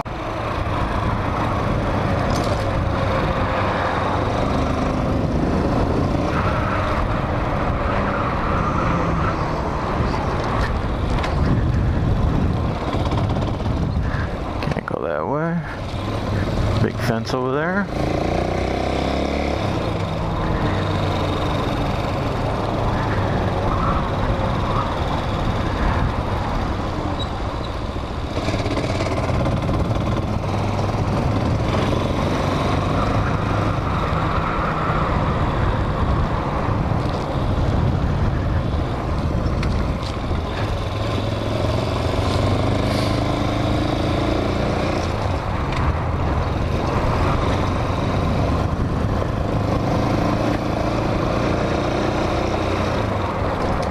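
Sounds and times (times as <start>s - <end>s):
wind noise on microphone: 0.4s - 15.0s, 19.0s - 53.9s
motorcycle engine running: 10.8s - 14.8s, 17.8s - 53.9s.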